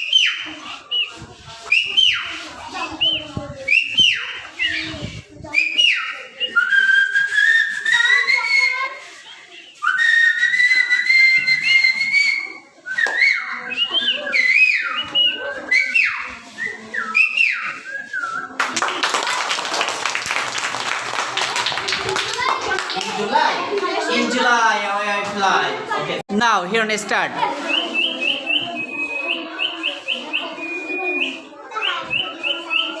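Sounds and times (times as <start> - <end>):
clapping: 18.6 - 23.2.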